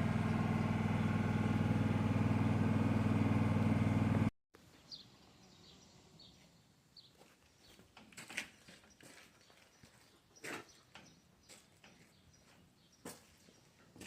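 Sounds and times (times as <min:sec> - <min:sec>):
engine idling: 0:00.0 - 0:04.3.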